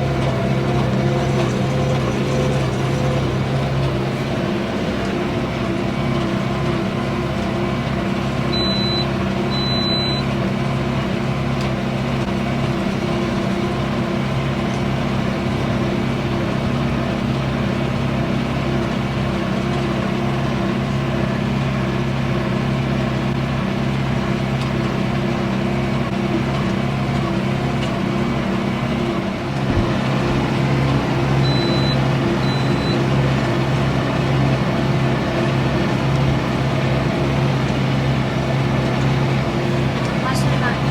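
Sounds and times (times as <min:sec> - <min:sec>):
tractor engine droning: 0:00.0 - 0:40.9
short high beeps: 0:08.6 - 0:10.2, 0:31.4 - 0:33.0.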